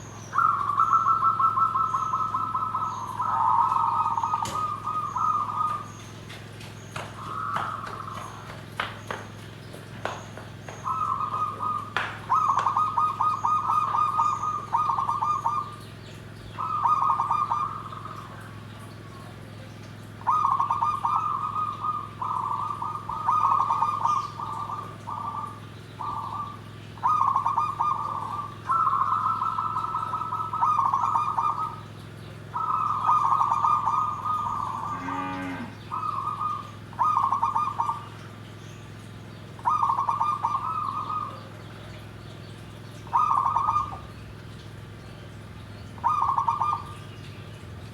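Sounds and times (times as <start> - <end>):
dove cooing: 0.0 - 6.3, 10.8 - 15.8, 16.6 - 18.8, 20.2 - 38.3, 39.6 - 42.0, 43.0 - 44.2, 46.0 - 47.0
steady low hum: 0.0 - 47.9.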